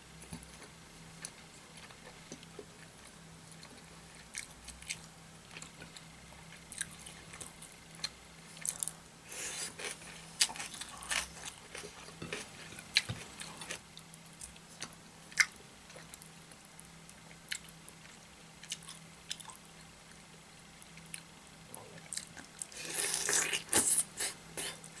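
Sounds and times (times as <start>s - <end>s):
wet chewing and crunching: 1.2s - 19.8s.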